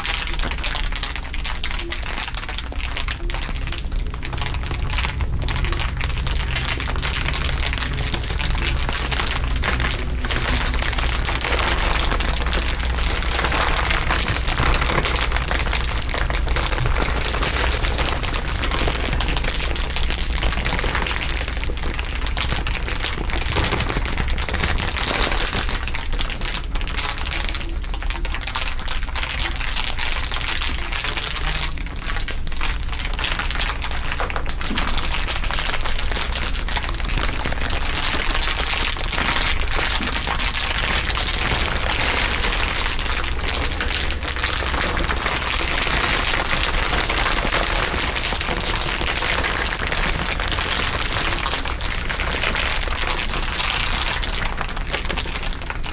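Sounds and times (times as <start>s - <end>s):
dense crinkling crackle: 0.0s - 55.9s
low rumble: 2.4s - 26.5s.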